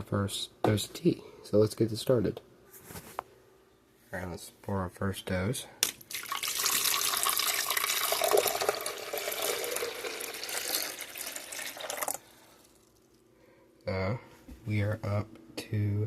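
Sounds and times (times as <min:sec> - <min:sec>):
water pouring and splashing: 0:05.8 - 0:12.2.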